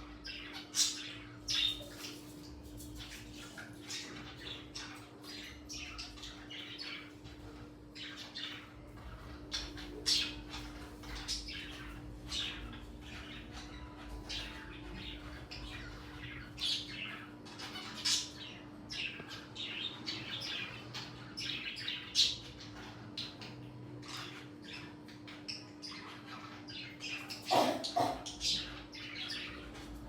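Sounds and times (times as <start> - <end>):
birds chirping and squawking: 0.0 - 30.0.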